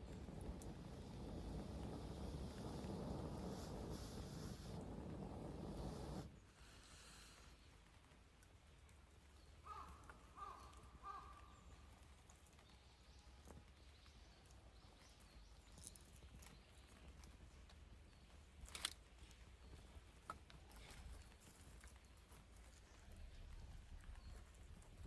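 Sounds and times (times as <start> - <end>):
sharp pops of fire: 0.0 - 6.3
campfire wood crackling: 0.0 - 25.0.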